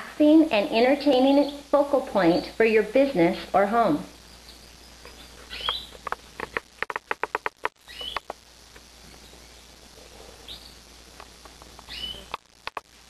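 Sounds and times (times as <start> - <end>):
birds chirping: 4.2 - 8.4, 10.4 - 12.3.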